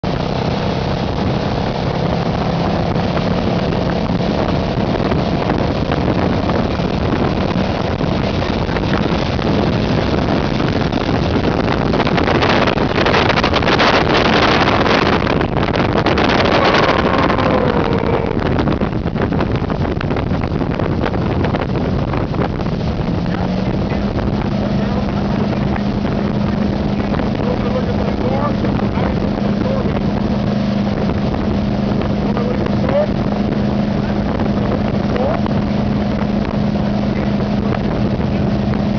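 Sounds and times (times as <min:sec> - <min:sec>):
motorboat engine hum: 0:00.0 - 0:38.9
rushing water: 0:00.0 - 0:38.9
wind buffeting microphone: 0:00.0 - 0:38.9
falling tone: 0:16.1 - 0:18.9.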